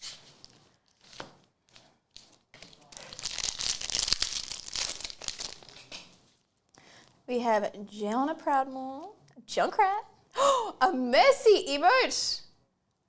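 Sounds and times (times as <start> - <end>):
foil wrapper tearing and crinkling: 0.0 - 6.1
handling rustles: 0.0 - 6.5.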